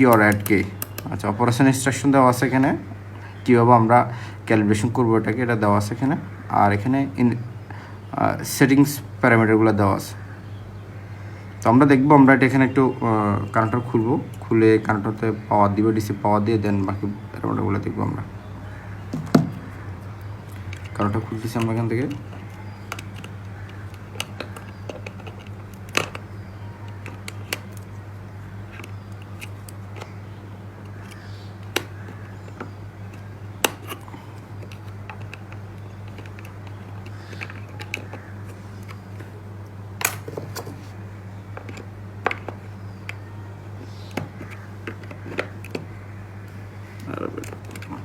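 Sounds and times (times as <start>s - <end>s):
sharp plastic clicks: 0.0s - 1.3s, 19.0s - 39.4s, 41.5s - 48.0s
steady low hum: 0.0s - 48.0s.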